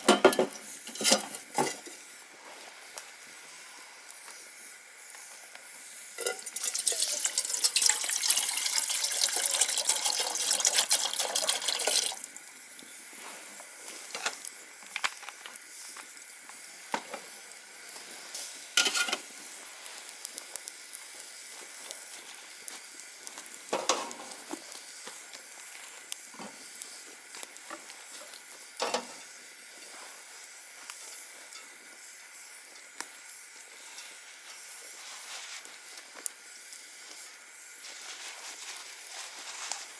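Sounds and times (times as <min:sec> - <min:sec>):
fire hissing and crackling: 0:00.0 - 0:39.9
liquid sizzling in a pot: 0:00.0 - 0:39.9
fire pops: 0:12.7 - 0:29.4.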